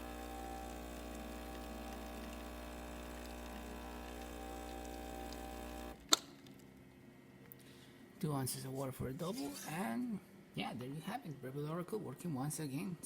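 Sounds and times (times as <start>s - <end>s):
espresso machine pump humming: 0.0s - 6.0s
liquid running: 0.0s - 6.0s.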